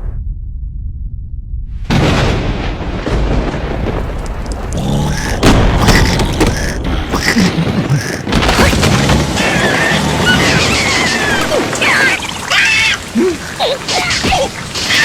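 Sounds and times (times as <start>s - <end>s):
booming thunder rumble: 0.6s - 7.3s
heavy rain: 2.5s - 15.0s.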